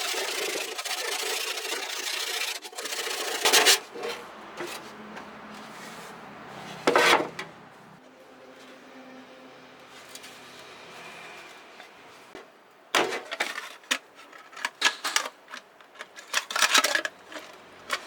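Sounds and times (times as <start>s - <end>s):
rasping scrape: 0.0s - 7.5s.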